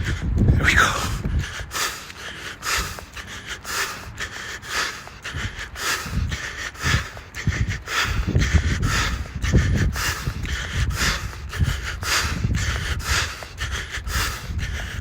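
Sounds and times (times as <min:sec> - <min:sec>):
low rumbles: 0:00.0 - 0:15.0
runner breathing hard: 0:00.0 - 0:15.0.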